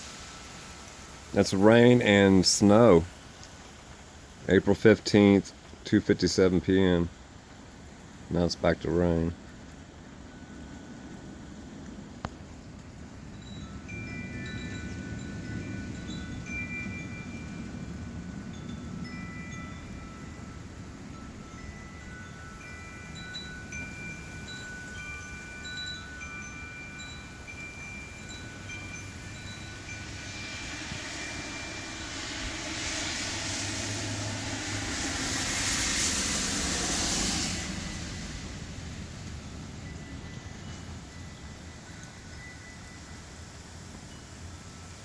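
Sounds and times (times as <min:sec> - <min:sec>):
gust of wind: 0:00.0 - 0:03.3, 0:13.1 - 0:41.7
wind chimes ringing: 0:13.2 - 0:36.3, 0:37.5 - 0:44.9.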